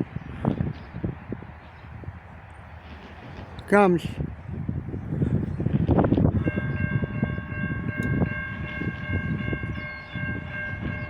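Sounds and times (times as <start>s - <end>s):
freight train rumbling: 0.0s - 11.0s
locomotive air horn: 6.3s - 11.0s.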